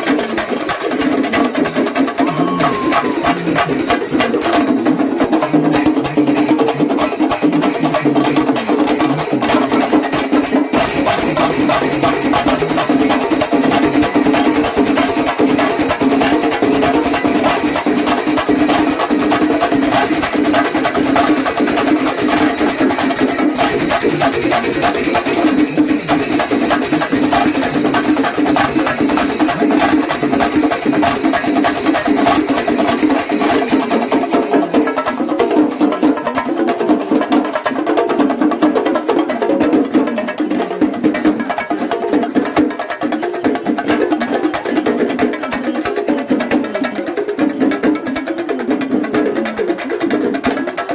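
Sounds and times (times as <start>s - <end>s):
fast drumming ensemble: 0.0s - 50.9s
steady held tone: 2.2s - 4.2s.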